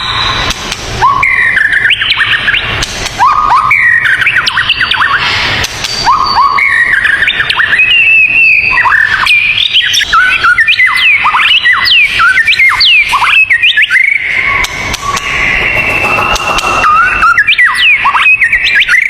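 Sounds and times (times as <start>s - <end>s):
songbirds whistling: 0.0s - 19.0s.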